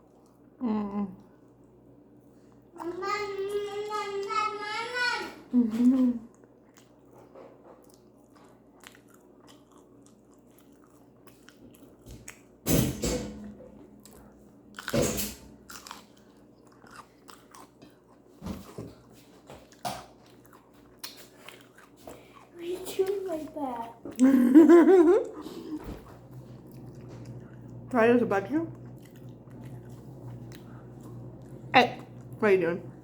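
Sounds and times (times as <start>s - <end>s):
chewing and biting food: 6.3s - 12.6s, 15.6s - 24.2s, 25.2s - 27.9s, 28.7s - 32.4s.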